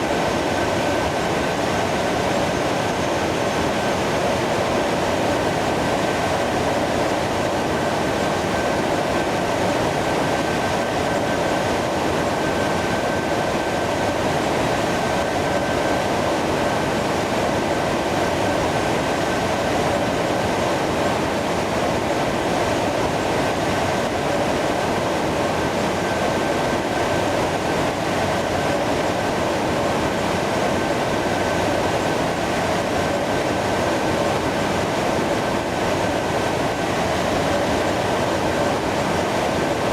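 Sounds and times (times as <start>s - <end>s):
jet engines rushing: 0.0s - 39.9s.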